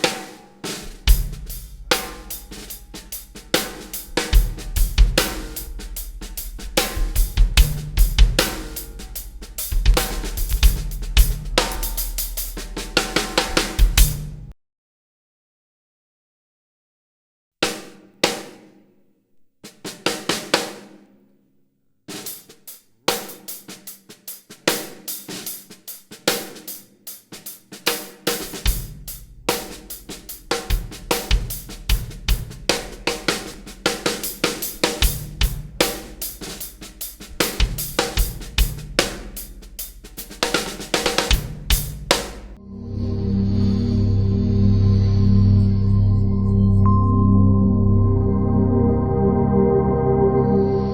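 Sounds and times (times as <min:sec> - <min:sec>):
acoustic drum kit playing: 0:00.0 - 0:14.5, 0:23.1 - 0:42.6.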